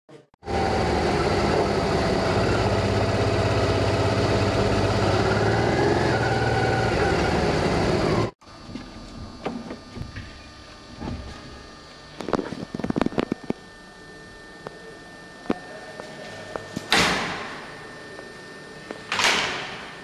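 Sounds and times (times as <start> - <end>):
motorcycle engine running: 0.4 - 8.4.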